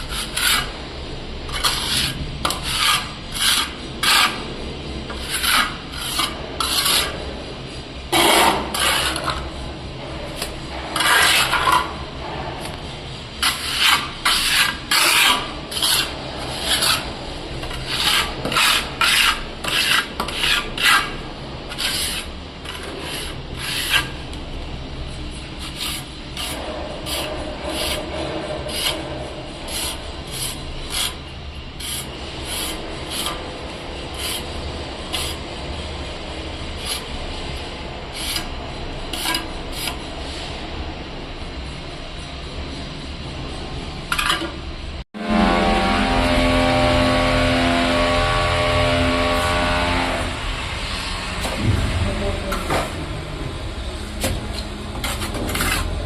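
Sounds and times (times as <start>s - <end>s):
rasping scraping on hard surface: 0.0s - 7.5s, 8.1s - 40.1s, 54.2s - 56.0s.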